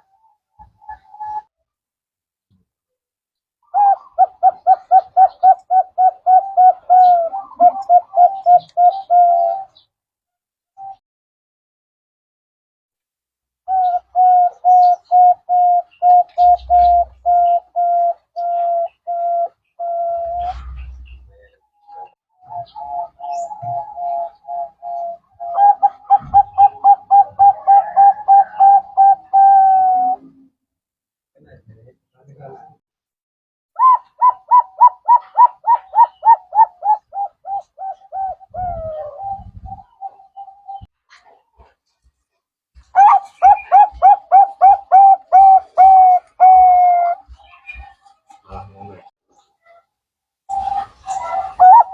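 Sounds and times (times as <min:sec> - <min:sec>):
dove cooing: 0:00.0 - 0:01.5, 0:03.7 - 0:09.8, 0:13.7 - 0:30.5, 0:33.8 - 0:41.3, 0:43.0 - 0:48.0, 0:50.5 - 0:51.9.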